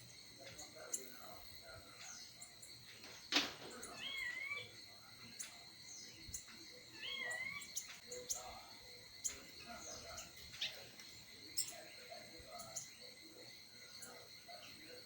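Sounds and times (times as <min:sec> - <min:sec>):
faint chirps: 0:00.0 - 0:15.0
high insect drone: 0:00.0 - 0:15.0
songbird warbled calls: 0:03.8 - 0:08.6, 0:09.2 - 0:13.2.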